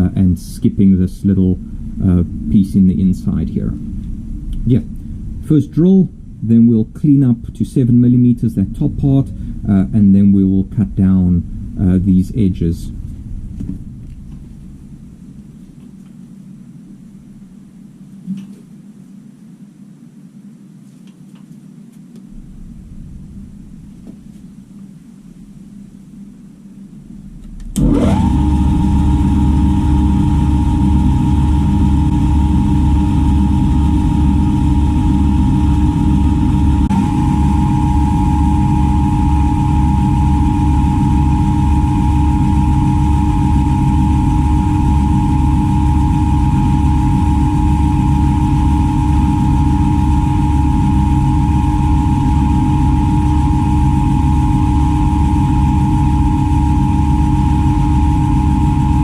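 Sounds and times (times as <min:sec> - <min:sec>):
milling machine motor whining: 0:27.4 - 0:59.0.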